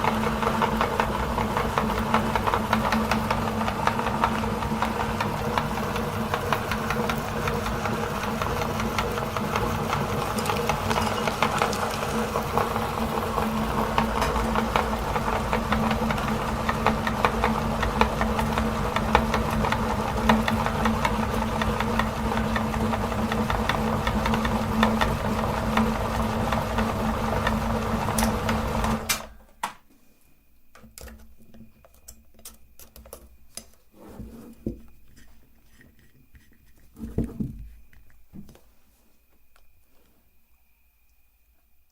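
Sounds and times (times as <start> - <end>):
meat grinder motor humming: 0.0 - 29.3.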